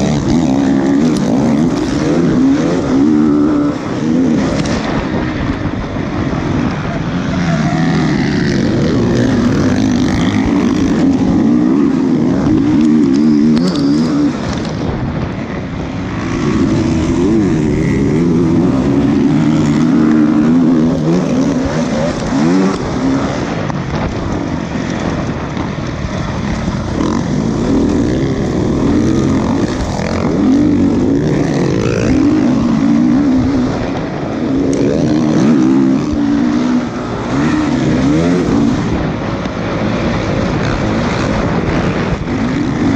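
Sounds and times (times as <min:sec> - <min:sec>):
motocross engines revving: 0:00.0 - 0:42.9.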